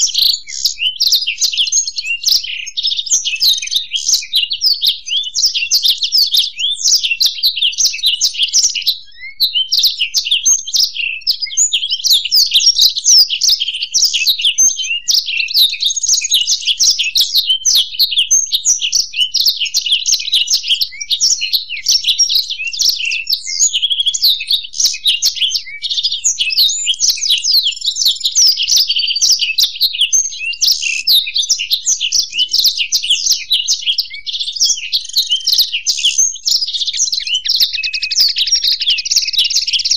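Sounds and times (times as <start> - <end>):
birds singing and twittering: 0.0 - 39.9.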